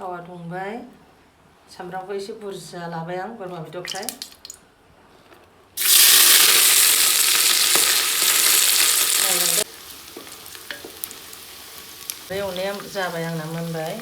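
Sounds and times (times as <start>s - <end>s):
meat sizzling in hot oil: 5.8s - 14.0s.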